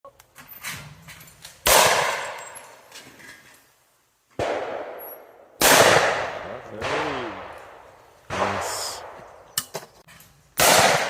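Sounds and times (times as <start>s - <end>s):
shotgun shots echoing: 1.6s - 2.4s, 4.4s - 9.5s, 10.6s - 11.0s.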